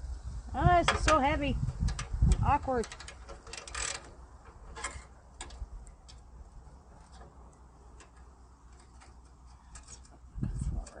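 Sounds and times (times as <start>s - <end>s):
tools and metal parts clicking: 1.9s - 6.2s, 7.9s - 11.0s.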